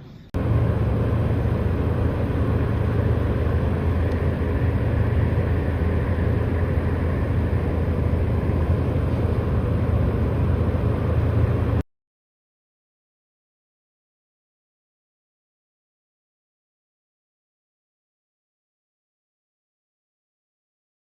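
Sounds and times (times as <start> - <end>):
strong wind buffeting microphone: 0.4 - 11.8.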